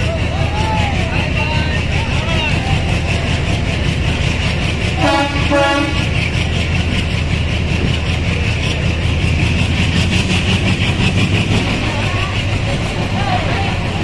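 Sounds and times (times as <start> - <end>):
train rumbling: 0.0 - 14.0
train horn toots: 5.0 - 6.2.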